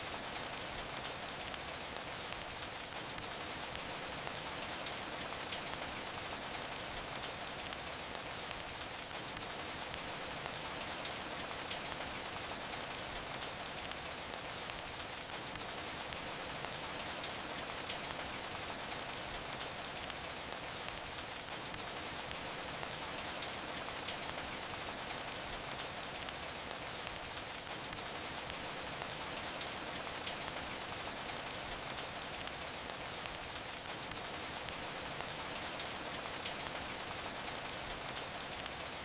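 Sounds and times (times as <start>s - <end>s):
steady rain: 0.0s - 39.0s
sharp clicks and pops: 6.4s - 10.6s, 11.7s - 16.8s, 24.3s - 29.6s, 30.2s - 35.4s.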